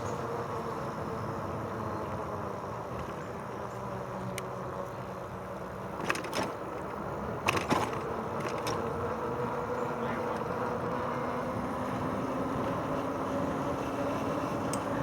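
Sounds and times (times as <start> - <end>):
bike tyres rolling on trail: 0.0 - 15.0
faint motor hum: 0.0 - 15.0
sharp clicks and rattles: 6.0 - 6.6, 7.4 - 8.9.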